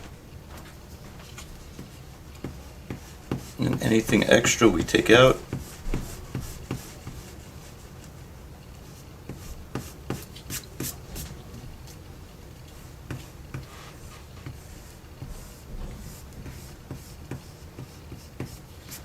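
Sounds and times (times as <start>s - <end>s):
drawing tools scratching on paper: 1.6s - 7.8s, 8.8s - 11.0s, 12.7s - 19.0s.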